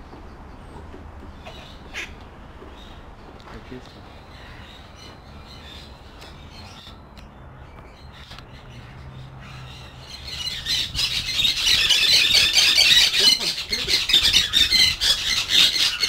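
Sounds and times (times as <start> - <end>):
caged birds squawking: 0.4 - 16.0.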